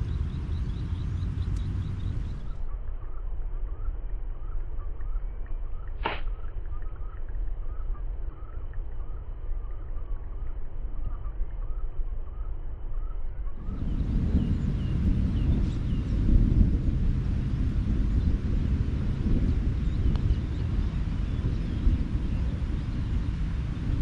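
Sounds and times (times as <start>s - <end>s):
wind on microphone: 0.0s - 2.8s, 13.0s - 24.0s
bird chirps: 0.0s - 16.2s.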